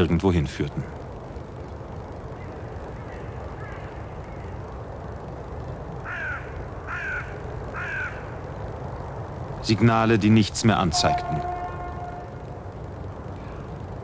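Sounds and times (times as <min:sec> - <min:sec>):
low background rumble: 0:00.0 - 0:14.0
bird harsh calls: 0:02.4 - 0:04.6, 0:06.0 - 0:08.4.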